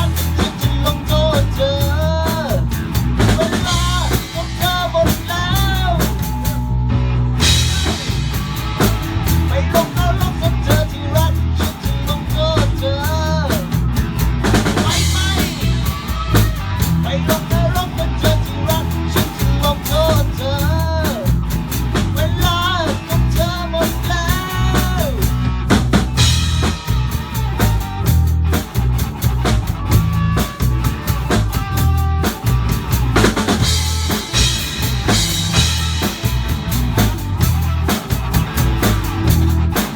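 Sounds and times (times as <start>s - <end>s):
lead melody with bent notes: 0.0s - 39.9s
rock band playing live: 0.0s - 39.9s
bass drum and snare hits: 7.4s - 11.0s, 24.0s - 39.9s.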